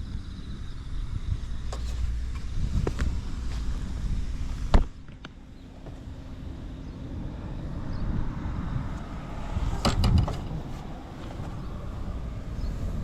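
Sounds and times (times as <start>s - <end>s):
small engine running quietly: 0.0s - 13.0s.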